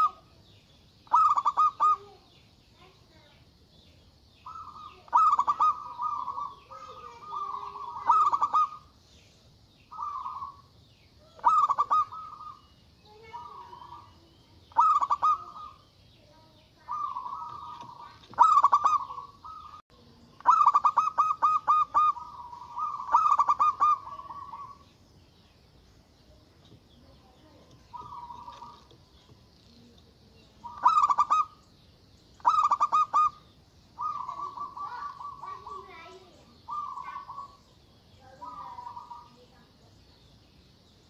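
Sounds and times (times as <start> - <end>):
dove cooing: 0.0 - 0.3, 1.0 - 2.9, 4.4 - 9.0, 9.9 - 19.8, 20.4 - 24.9, 27.5 - 31.6, 32.4 - 39.7.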